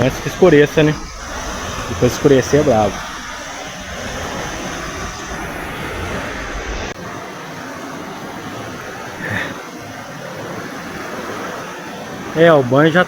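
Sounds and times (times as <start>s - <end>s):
low rumble: 0.0s - 7.0s
river water rushing: 0.0s - 13.0s.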